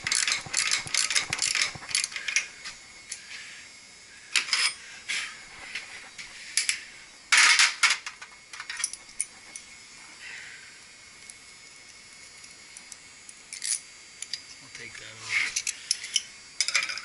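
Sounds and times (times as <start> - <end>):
metallic rattle: 0.0 - 2.3
ratchet-like clicks: 0.0 - 2.4.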